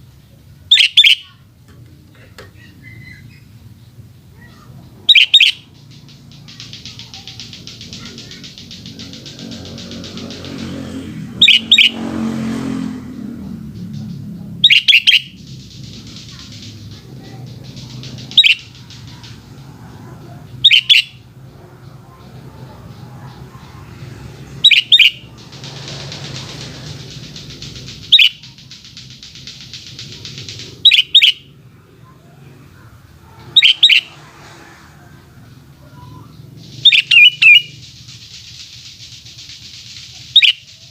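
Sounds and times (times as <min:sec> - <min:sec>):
bird calling descending notes: 0:00.6 - 0:01.4, 0:02.4 - 0:40.9
fast pulsing buzz: 0:04.9 - 0:35.8.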